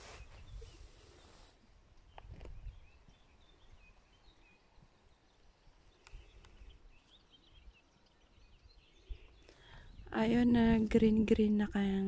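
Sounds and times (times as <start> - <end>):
faint birdsong chirps: 0.0 - 12.0
faint clicks: 5.9 - 7.2.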